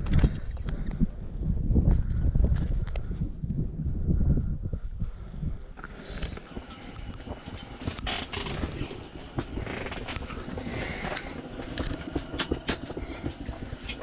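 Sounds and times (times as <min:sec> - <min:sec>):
wind noise on microphone: 0:00.0 - 0:14.0
sharp clicks and knocks: 0:06.3 - 0:14.0.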